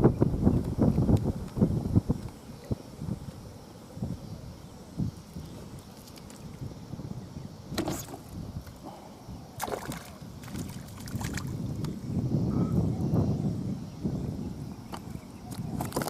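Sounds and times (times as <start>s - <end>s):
wind rumbling on microphone: 0.0s - 16.0s
water sloshing and lapping: 9.6s - 11.7s.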